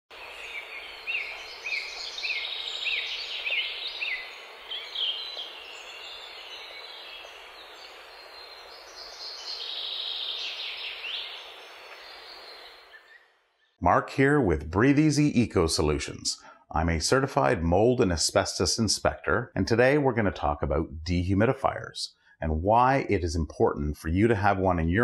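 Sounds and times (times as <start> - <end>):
birds singing: 0.1 - 13.8
outdoor ambience hiss: 0.1 - 24.5.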